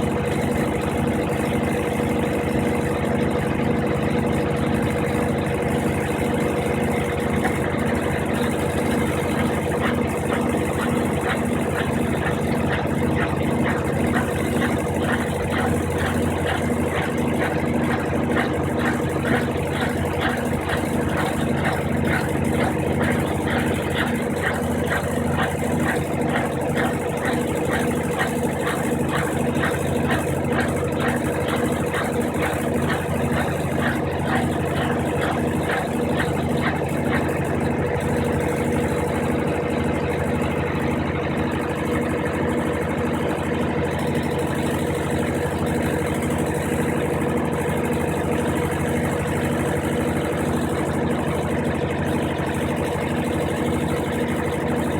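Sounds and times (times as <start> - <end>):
washing machine motor hum: 0.0 - 54.9
rhythmic swishing: 9.7 - 37.4.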